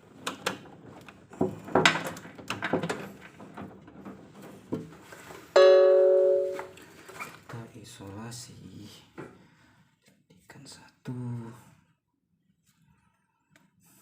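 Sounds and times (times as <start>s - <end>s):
knocks and clatter of hand work: 0.0s - 6.7s.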